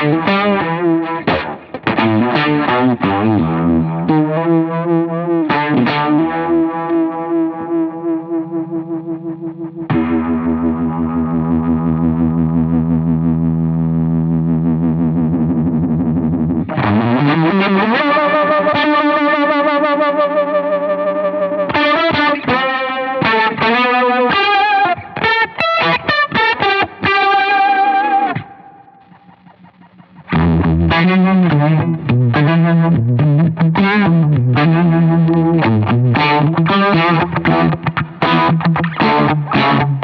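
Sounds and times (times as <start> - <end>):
fuzzy electric guitar: 0.0 - 40.0.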